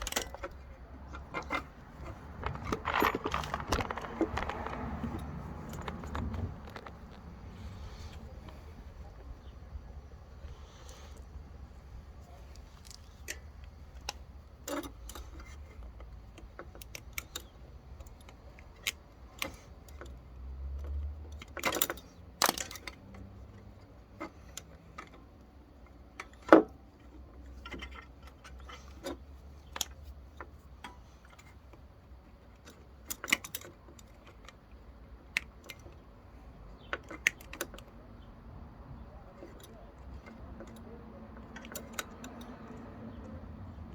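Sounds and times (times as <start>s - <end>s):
metallic clicks of hand tools: 39.3s - 43.3s.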